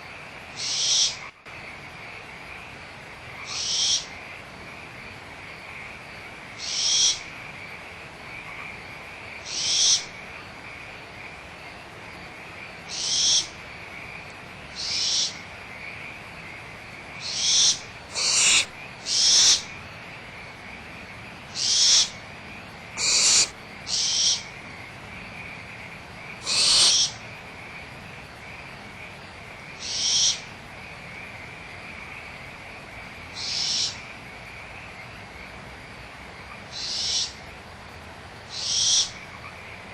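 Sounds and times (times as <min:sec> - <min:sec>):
frog chorus: 0:00.0 - 0:39.9
owlets hissing calls: 0:03.5 - 0:04.1, 0:14.8 - 0:15.4, 0:17.2 - 0:19.7, 0:21.5 - 0:22.2, 0:23.0 - 0:24.5, 0:26.4 - 0:27.2, 0:38.5 - 0:39.1.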